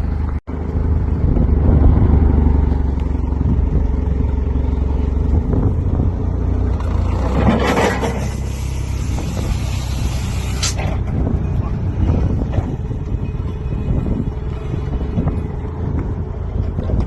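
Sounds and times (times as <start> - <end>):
loud hiss: 8.2 - 10.8.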